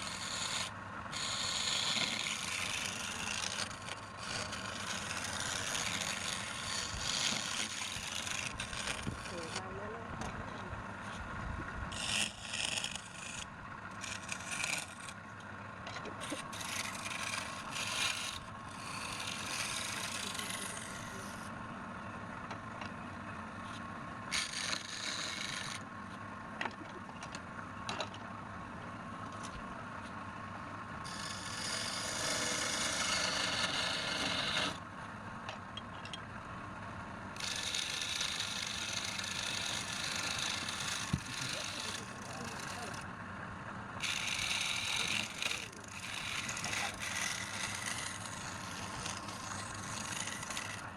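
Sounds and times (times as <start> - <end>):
lathe motor humming: 0.0 - 15.6, 16.2 - 26.5, 30.9 - 34.8, 37.3 - 43.1, 43.7 - 50.9
tool scraping spinning wood: 0.0 - 28.2, 29.1 - 36.2, 36.9 - 43.1, 44.0 - 50.9.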